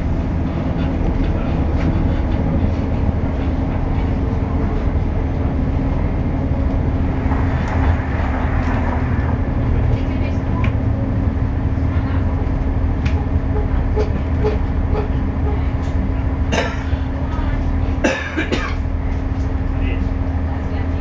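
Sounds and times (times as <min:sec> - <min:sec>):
rail click: 0:00.0 - 0:21.0
running gear hum: 0:00.0 - 0:21.0
train rumbling on rails: 0:00.0 - 0:21.0.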